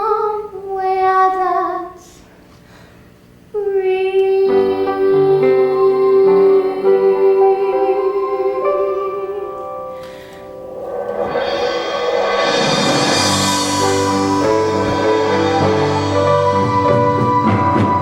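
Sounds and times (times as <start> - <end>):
woman singing with vibrato: 0.0 - 2.1, 3.5 - 10.0
accompaniment chords: 4.2 - 18.0.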